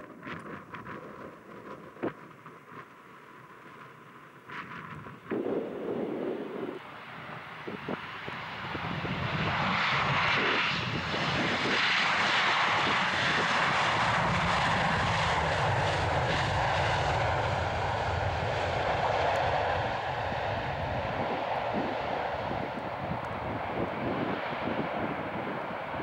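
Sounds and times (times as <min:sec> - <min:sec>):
jet airliner passing: 0:04.5 - 0:26.0.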